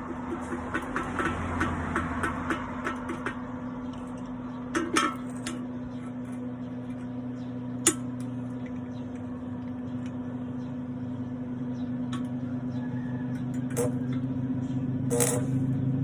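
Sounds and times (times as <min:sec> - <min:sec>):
electrical hum: 0:00.0 - 0:16.0
metal clinks: 0:15.1 - 0:15.7.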